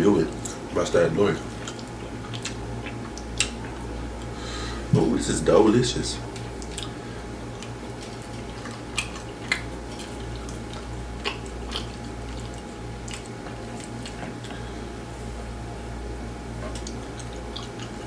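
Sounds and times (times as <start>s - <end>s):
steady low hum: 0.0s - 18.0s
wet chewing mouth clicks: 1.4s - 4.3s, 6.3s - 14.6s, 16.7s - 18.0s.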